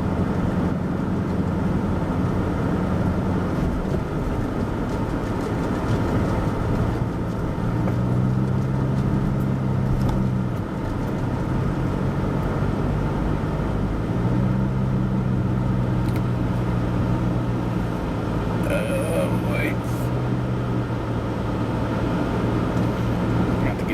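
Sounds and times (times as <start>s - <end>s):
car engine hum: 0.0s - 23.9s
road noise rumble: 0.0s - 23.9s.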